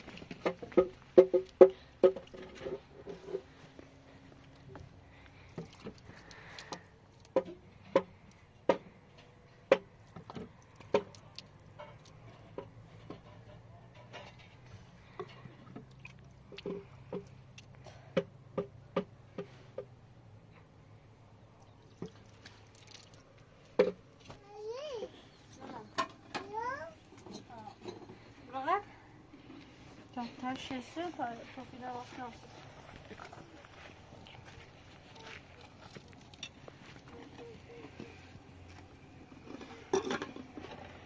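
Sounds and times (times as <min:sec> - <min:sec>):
hard objects knocking and clacking: 0:00.1 - 0:03.4.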